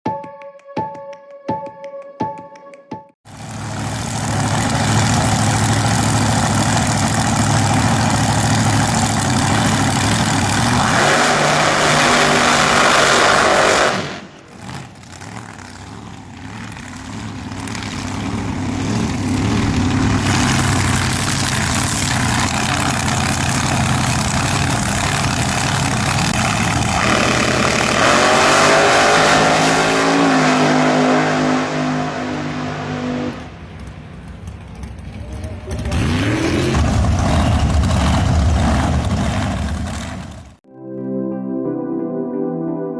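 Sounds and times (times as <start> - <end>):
dragster engine accelerating: 3.3 - 40.6.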